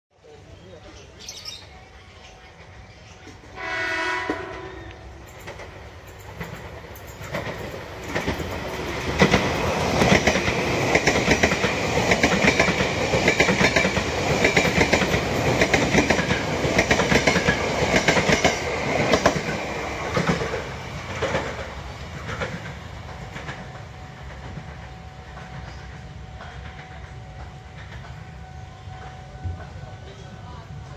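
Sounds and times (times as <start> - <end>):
train wheels clattering over rails: 2.2 - 28.4
train horn: 3.5 - 5.3.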